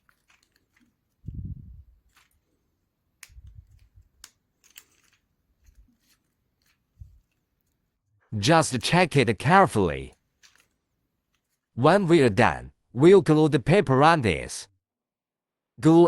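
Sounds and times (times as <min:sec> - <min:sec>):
light clicks and taps of model parts: 0:00.0 - 0:01.2, 0:03.2 - 0:07.8, 0:10.1 - 0:11.7.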